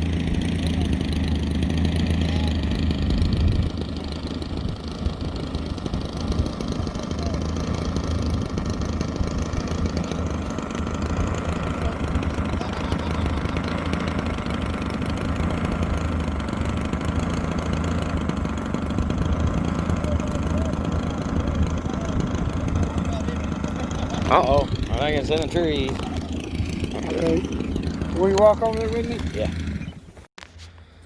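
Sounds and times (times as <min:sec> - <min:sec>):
strong wind buffeting microphone: 0:03.0 - 0:14.2, 0:18.8 - 0:28.4.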